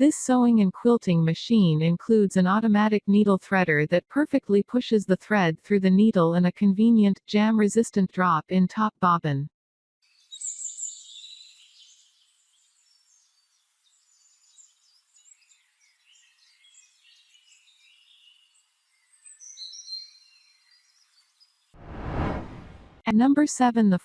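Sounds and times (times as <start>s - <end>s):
faint bird chirps: 10.2s - 21.5s.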